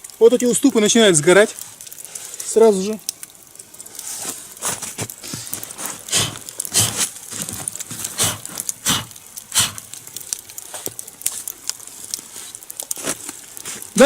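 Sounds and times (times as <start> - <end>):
burning logs crackling: 0.0 - 14.0
sharp pops of fire: 3.0 - 14.0.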